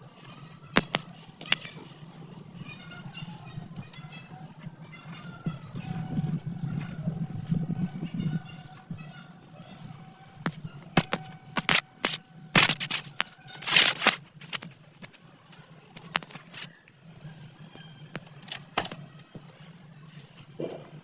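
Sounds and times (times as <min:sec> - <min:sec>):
metal tool scraping: 0:10.5 - 0:14.8.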